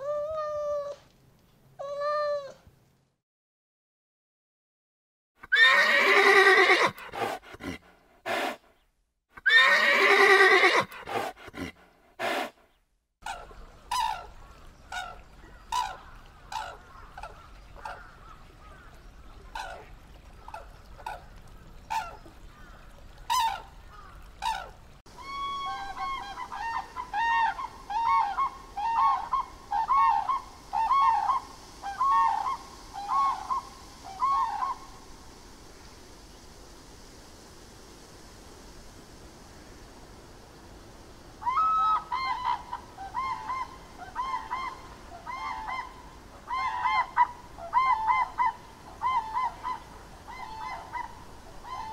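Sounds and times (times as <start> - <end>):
foal whinnying: 5.5 - 7.8.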